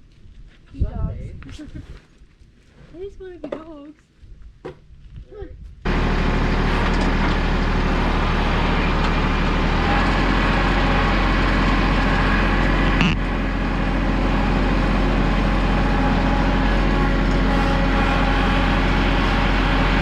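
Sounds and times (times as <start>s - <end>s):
heavy machine engine running: 5.9s - 20.0s.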